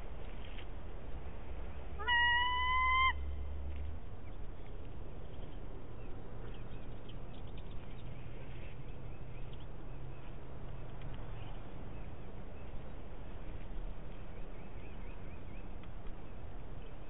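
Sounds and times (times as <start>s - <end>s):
long bird call: 2.0s - 3.4s.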